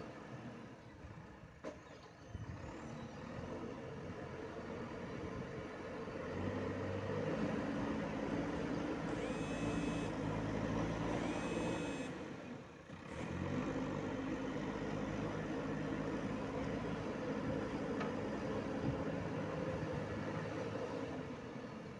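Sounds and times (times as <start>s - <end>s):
diesel engine under load: 0.0s - 21.9s
high electronic beeps: 9.1s - 10.1s, 11.2s - 12.1s.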